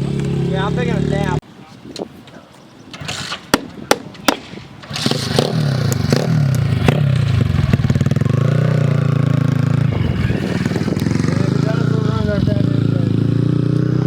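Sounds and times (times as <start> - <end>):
small motorbike engine running: 4.9 - 14.0.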